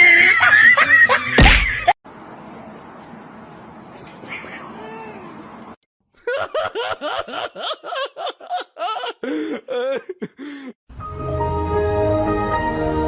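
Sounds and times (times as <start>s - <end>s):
high-pitched laughter: 0.0s - 1.9s
music: 10.9s - 13.0s.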